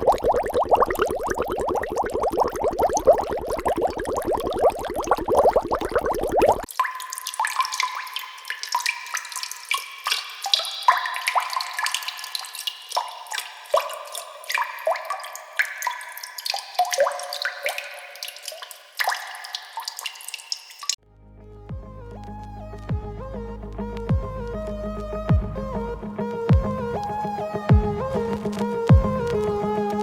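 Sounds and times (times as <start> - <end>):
water drops plinking: 0.0 - 21.0.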